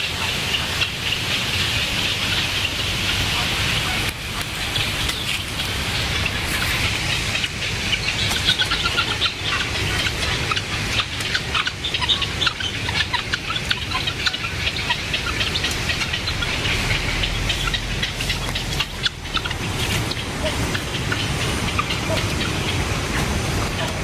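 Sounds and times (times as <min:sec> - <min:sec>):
birds chirping: 0:00.0 - 0:24.0
steady hiss: 0:00.1 - 0:11.2.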